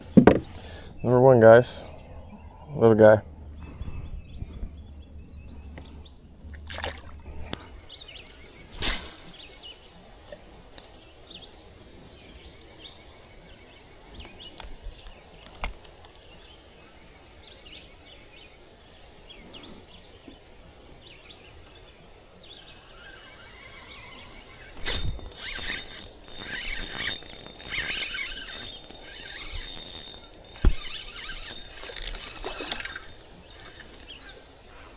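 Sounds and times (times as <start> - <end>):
birds calling: 22.6 - 34.9.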